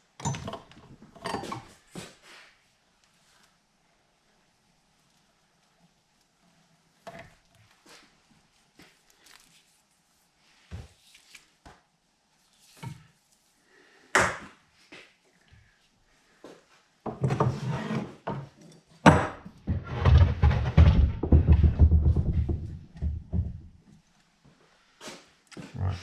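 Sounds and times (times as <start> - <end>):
rough scraping and rattling: 19.6 - 22.7.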